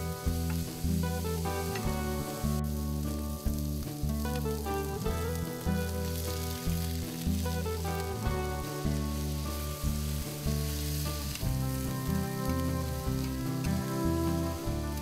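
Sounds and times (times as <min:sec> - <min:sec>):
meat sizzling in a pan: 0:00.0 - 0:15.0
soft background music: 0:00.0 - 0:15.0.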